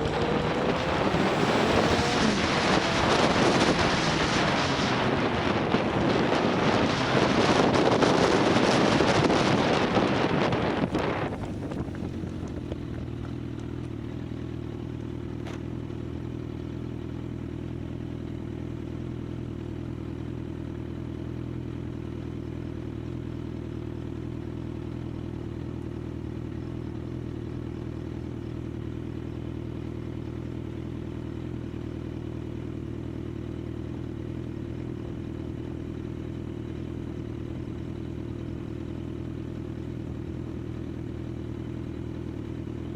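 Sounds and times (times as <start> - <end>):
wind noise on microphone: 0.0 - 13.1
motorcycle engine idling: 4.3 - 42.9.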